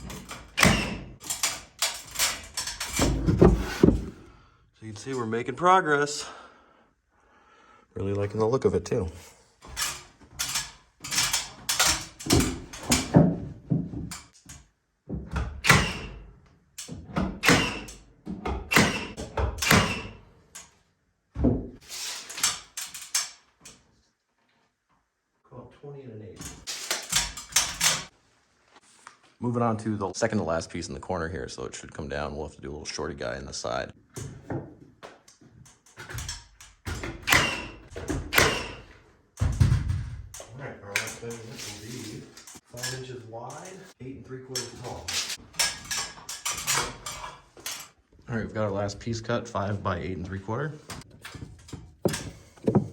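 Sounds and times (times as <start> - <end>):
wooden boards knocking and scraping: 2.9 - 4.3, 52.0 - 52.9.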